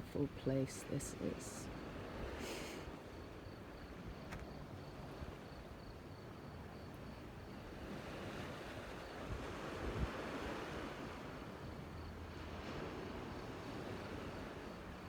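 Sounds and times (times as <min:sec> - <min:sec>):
wind: 0:00.0 - 0:15.0
sea surf: 0:07.8 - 0:11.6.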